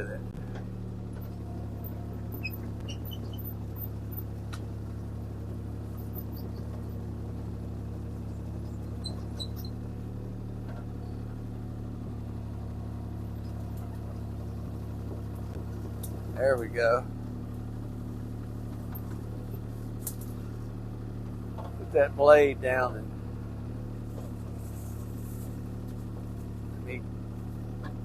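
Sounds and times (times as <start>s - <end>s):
excavator diesel engine running: 0.0s - 28.0s
faint high squeaks: 1.3s - 4.3s, 8.9s - 9.9s.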